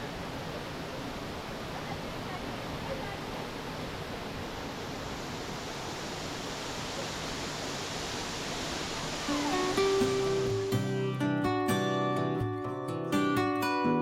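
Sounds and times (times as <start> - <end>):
falling water rushing: 0.0 - 11.3
acoustic guitar music: 9.3 - 14.0.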